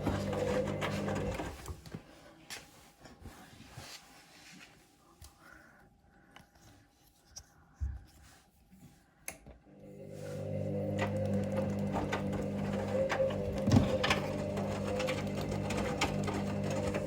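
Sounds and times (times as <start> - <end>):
washing machine motor humming: 0.0 - 1.7, 9.7 - 17.0.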